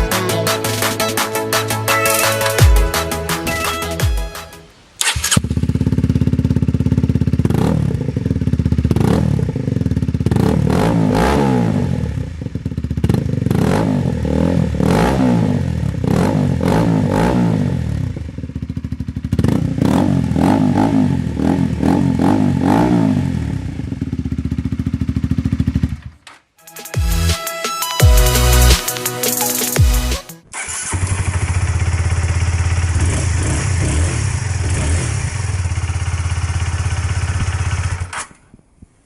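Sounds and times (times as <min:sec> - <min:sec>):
motorcycle engine starting: 0:00.0 - 0:26.5, 0:28.0 - 0:38.6
motorcycle engine idling and revving: 0:05.0 - 0:26.5, 0:29.9 - 0:38.5.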